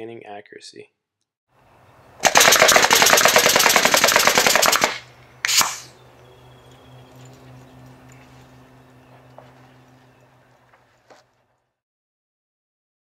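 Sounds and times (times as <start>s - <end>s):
nail gun firing: 2.2s - 5.9s
short air hiss: 5.4s - 5.9s.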